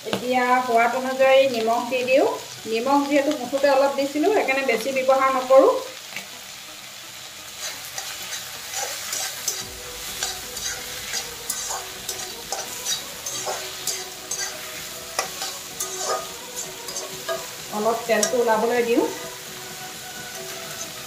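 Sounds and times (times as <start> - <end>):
meat and onions sizzling in oil: 0.0 - 21.0
wooden spatula scraping pan: 7.6 - 17.5.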